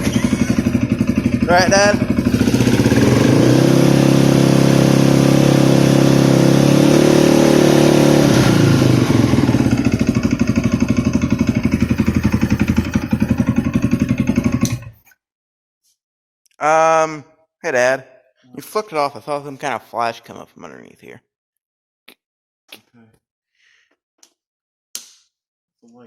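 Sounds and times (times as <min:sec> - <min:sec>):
atv engine running and idling: 0:00.0 - 0:15.0.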